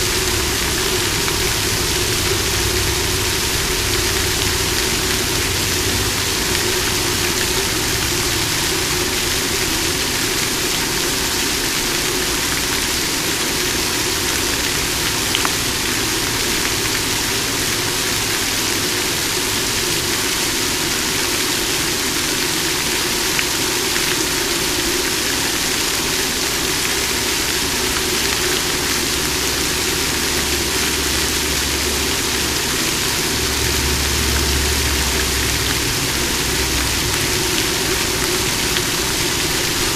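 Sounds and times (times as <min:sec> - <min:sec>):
low rumble: 0:00.0 - 0:09.7, 0:30.9 - 0:39.9
water fountain splashing: 0:00.0 - 0:39.9.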